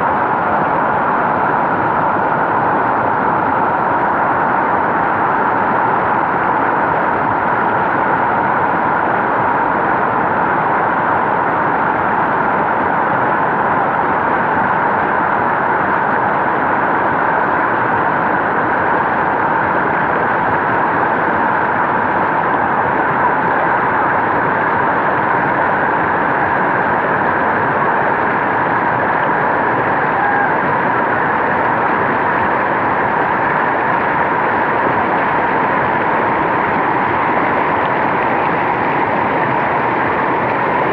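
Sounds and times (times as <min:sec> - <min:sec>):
stream rushing over rocks: 0:08.5 - 0:40.9.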